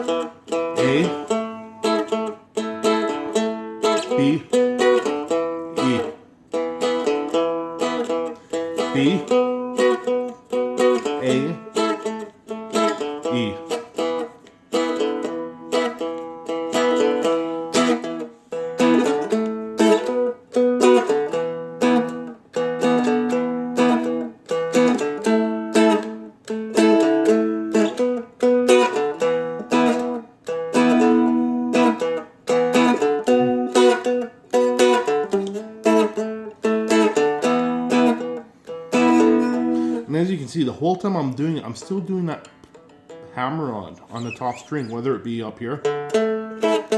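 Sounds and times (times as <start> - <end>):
dulcimer strummed in blues rhythm: 0.0 - 46.9.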